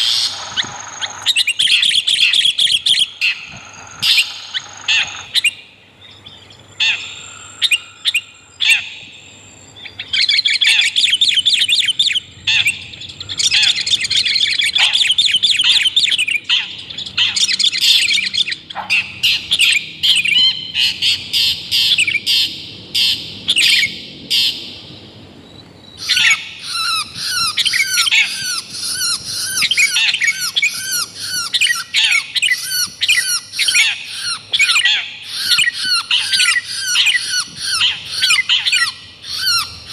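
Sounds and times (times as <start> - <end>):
bird whistled notes: 0.0 - 24.6
birds harsh chattering: 0.0 - 39.9.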